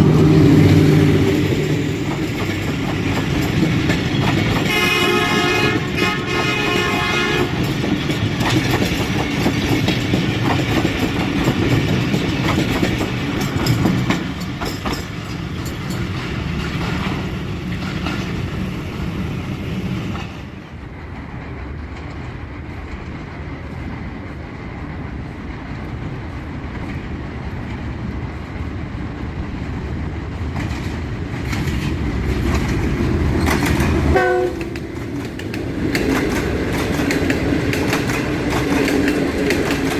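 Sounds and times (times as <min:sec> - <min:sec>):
train wheels clattering over rail joints: 0:00.0 - 0:39.9
train horn: 0:04.6 - 0:07.7, 0:34.1 - 0:34.8.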